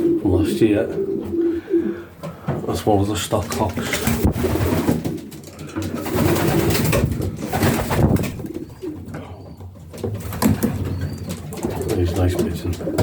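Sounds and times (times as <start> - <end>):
pigeons cooing: 0.0 - 2.6, 3.4 - 13.0.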